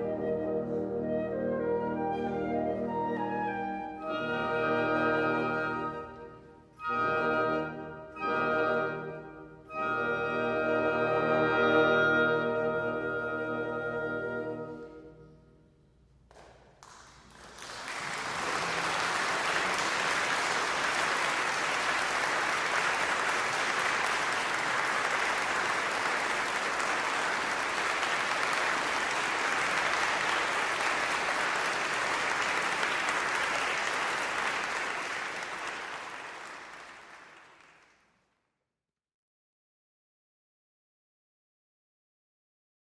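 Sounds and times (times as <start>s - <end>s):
audience applauding: 16.3s - 38.2s.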